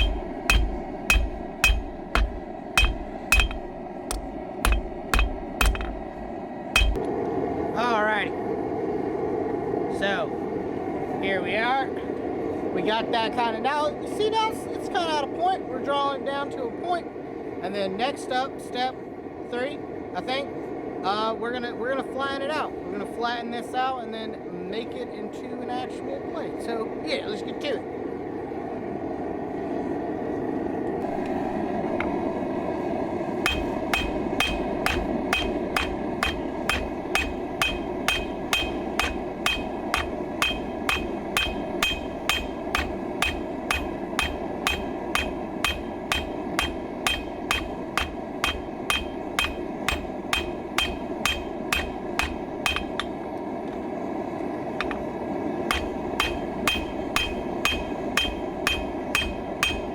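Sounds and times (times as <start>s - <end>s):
hammer striking metal on anvil: 0.0s - 7.1s, 33.4s - 53.2s, 54.8s - 55.1s, 55.7s - 59.9s.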